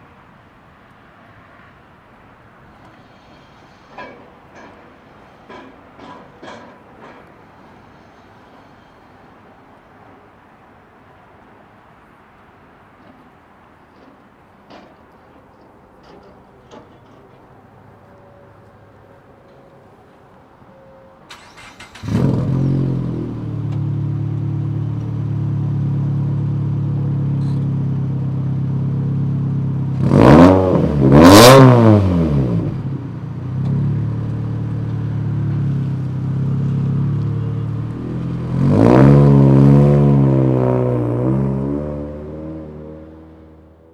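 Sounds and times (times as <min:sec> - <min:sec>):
car engine starting and revving: 0:21.3 - 0:27.4, 0:29.8 - 0:43.8.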